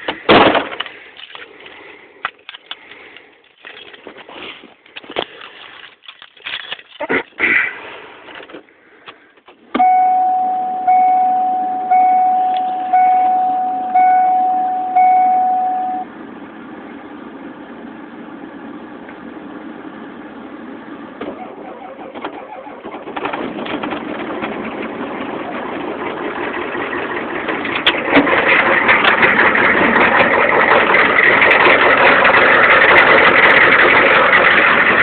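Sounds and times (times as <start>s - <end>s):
diesel engine starting and running: 0.0s - 35.0s
truck warning chime dinging: 9.8s - 16.1s.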